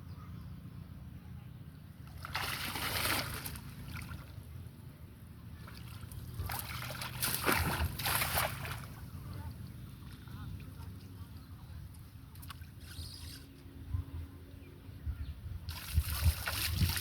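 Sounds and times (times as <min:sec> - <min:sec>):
water splashing: 0:02.0 - 0:04.3, 0:05.6 - 0:09.2, 0:15.7 - 0:17.0.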